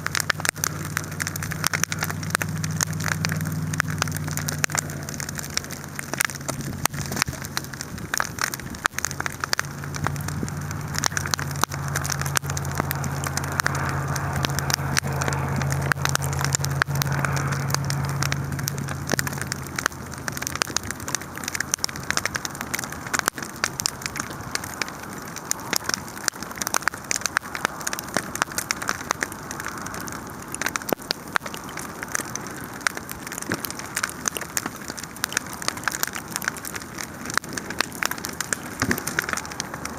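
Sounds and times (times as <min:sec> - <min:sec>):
low steady drone: 0:00.0 - 0:25.1
sharp pops: 0:00.0 - 0:39.9
wood fire crackling: 0:00.0 - 0:39.9.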